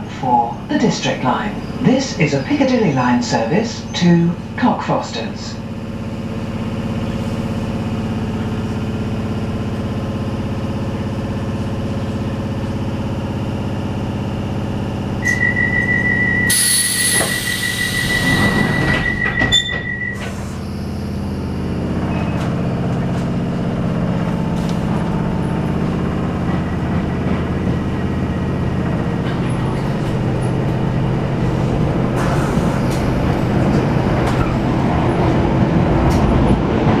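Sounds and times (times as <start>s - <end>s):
train humming at platform: 0.0s - 37.0s
train motor pulling away: 14.6s - 35.0s
pulsing beep: 15.2s - 20.3s
train doors closing knock: 15.2s - 20.6s
air hiss: 16.5s - 18.9s.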